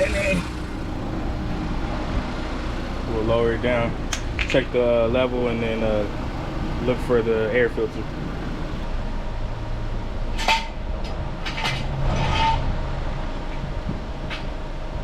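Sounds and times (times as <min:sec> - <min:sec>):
steady low hum: 0:00.0 - 0:11.4
metal clanks and scrapes: 0:10.4 - 0:10.8, 0:11.4 - 0:12.7.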